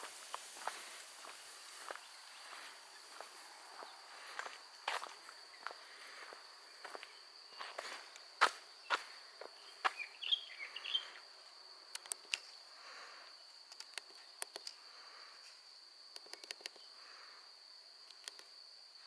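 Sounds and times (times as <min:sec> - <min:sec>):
high-pitched insect trill: 0:00.0 - 0:19.0
chirping: 0:09.7 - 0:11.2
scattered ticks: 0:11.9 - 0:12.5, 0:13.2 - 0:14.8, 0:15.4 - 0:16.9, 0:18.0 - 0:18.6
sharp clicks: 0:11.9 - 0:12.5, 0:13.6 - 0:14.8, 0:16.1 - 0:16.9, 0:18.0 - 0:18.6.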